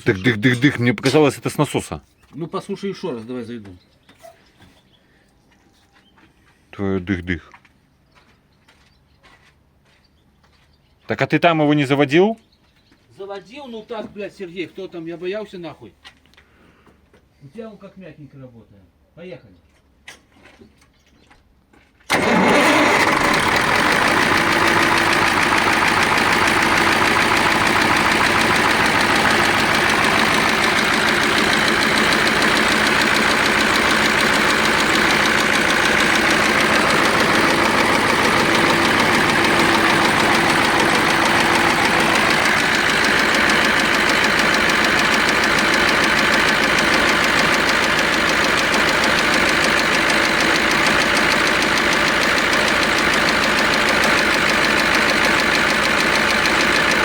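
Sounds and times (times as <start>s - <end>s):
diesel engine idling with knock: 22.1s - 57.0s.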